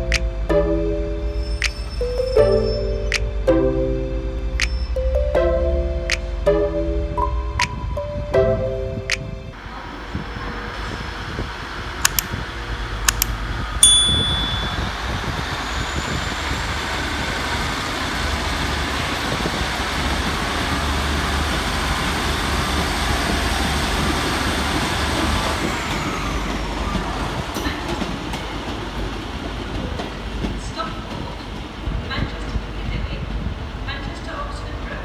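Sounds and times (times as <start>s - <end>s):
diesel train engine rumbling: 0.0s - 35.0s
high squeal: 1.3s - 3.1s
sharp clicks: 12.0s - 12.4s, 13.1s - 13.4s.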